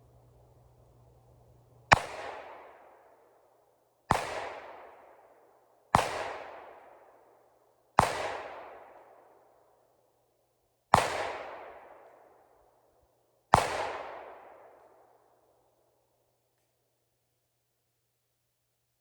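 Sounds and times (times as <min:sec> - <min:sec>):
gunshots with long echo: 0:01.8 - 0:09.6, 0:10.9 - 0:12.5, 0:13.5 - 0:15.4.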